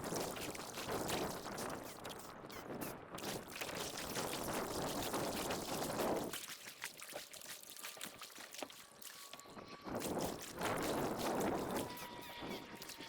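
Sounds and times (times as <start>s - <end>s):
kayak paddle pulling through water: 0.0s - 2.2s, 3.2s - 13.0s.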